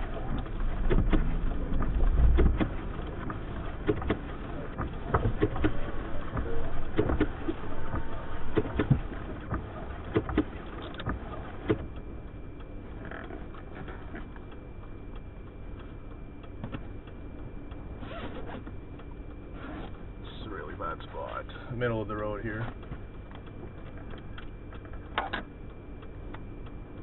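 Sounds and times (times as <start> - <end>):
blizzard wind rumble: 0.0 - 13.0
vehicle rumble from inside cab: 0.0 - 27.0.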